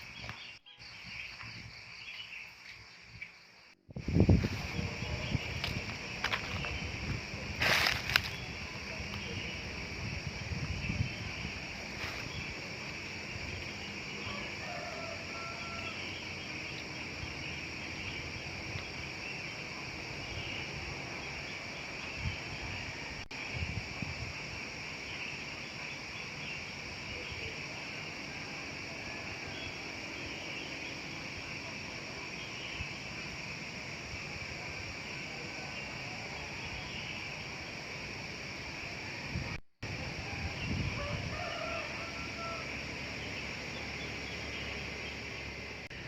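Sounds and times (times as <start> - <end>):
high-pitched insect drone: 0.0 - 46.0
distant rooster crowing: 13.8 - 16.5, 39.9 - 44.6.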